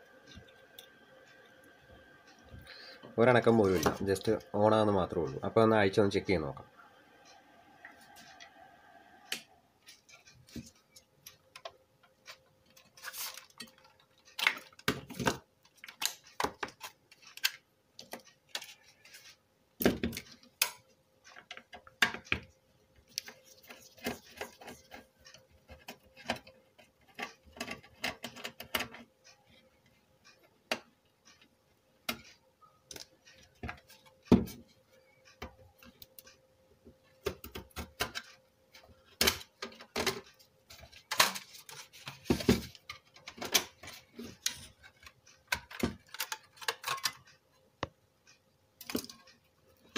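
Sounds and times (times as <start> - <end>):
faint steady hum: 0.0 - 49.9
clicks and knocks of disassembly: 37.2 - 47.3.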